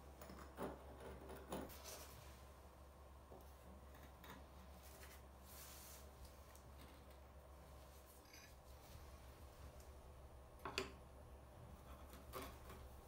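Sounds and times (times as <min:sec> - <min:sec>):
faint room hum: 0:00.0 - 0:13.0
soft scrapes: 0:01.7 - 0:02.6, 0:04.7 - 0:06.6.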